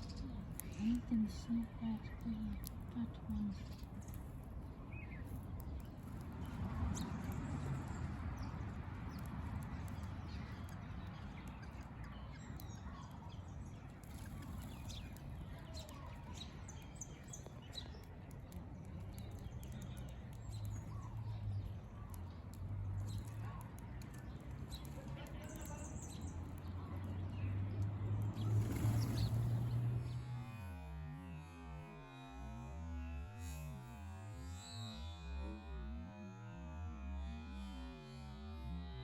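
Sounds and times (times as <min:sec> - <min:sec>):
wild birds chirping: 0:00.0 - 0:30.2.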